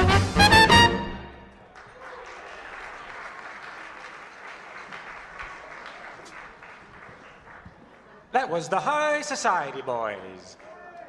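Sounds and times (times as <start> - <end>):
swing band with horns: 0.0 - 1.5
audience applause: 1.5 - 8.6.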